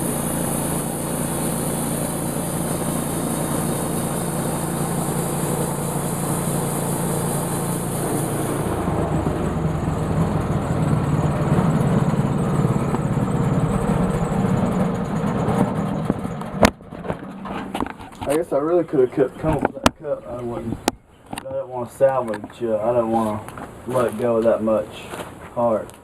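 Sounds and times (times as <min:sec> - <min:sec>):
saw cutting wood hiss: 0:00.0 - 0:08.9
sawmill engine running: 0:00.0 - 0:24.6.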